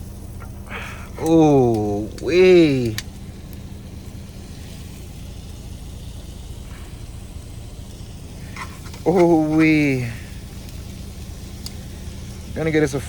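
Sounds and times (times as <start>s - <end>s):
steak sizzling in a pan: 0.0s - 13.0s
truck engine idling: 0.0s - 13.0s.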